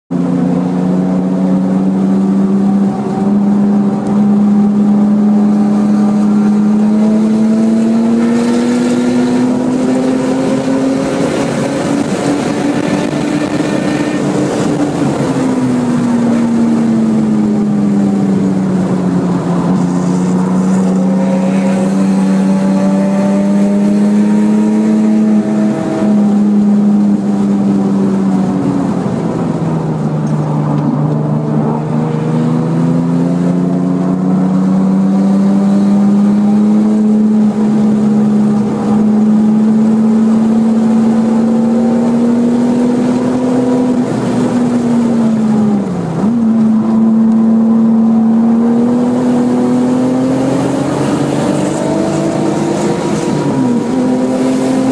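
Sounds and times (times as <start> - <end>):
car engine revving: 0.1 - 54.9.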